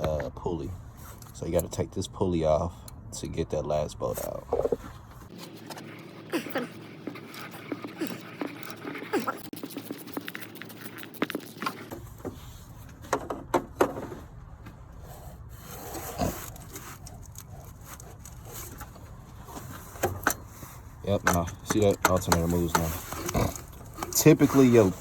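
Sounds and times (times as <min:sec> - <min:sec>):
hand tools on metal: 0:15.6 - 0:25.0.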